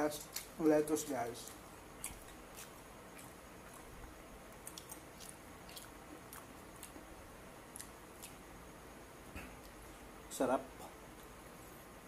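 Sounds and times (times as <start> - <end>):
person chewing lettuce: 0.0 - 8.4.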